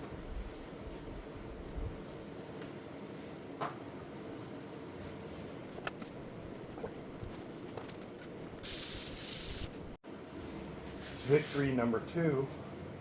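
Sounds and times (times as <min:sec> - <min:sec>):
spraying hiss: 0:08.6 - 0:09.9.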